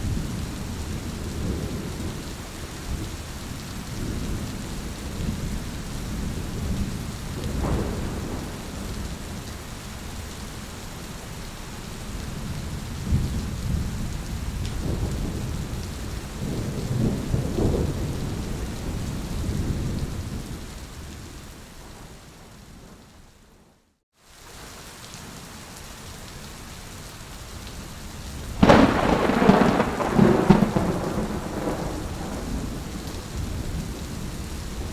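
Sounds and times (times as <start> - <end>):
steady rain: 0.0 - 34.9
rolling thunder: 4.0 - 9.4, 12.4 - 20.6, 28.6 - 34.9.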